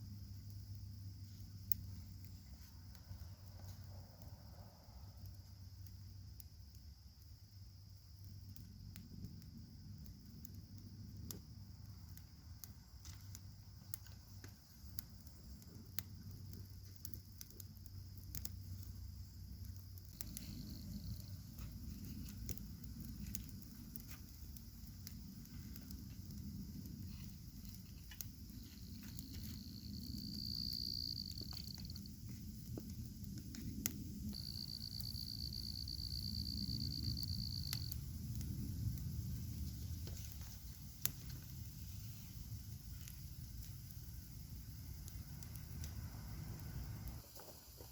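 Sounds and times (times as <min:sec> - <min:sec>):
campfire crackling and popping: 0:00.0 - 0:47.9.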